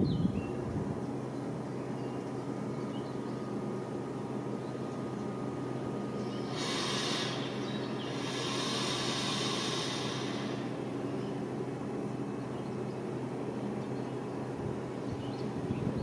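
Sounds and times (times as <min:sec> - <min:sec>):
train electrical hum: 0:00.0 - 0:16.0
compressed air hissing: 0:06.4 - 0:11.1.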